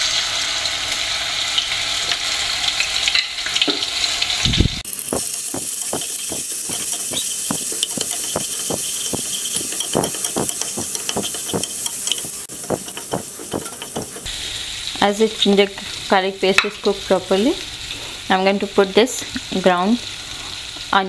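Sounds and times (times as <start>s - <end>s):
paste sizzling in hot oil: 4.8s - 15.0s
wooden spatula scraping a pan: 5.0s - 14.3s.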